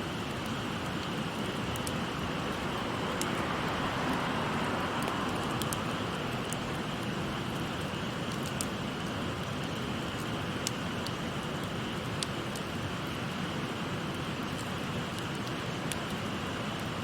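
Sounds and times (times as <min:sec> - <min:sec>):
flowing stream: 0:00.0 - 0:17.0
wood fire crackling and popping: 0:00.0 - 0:17.0.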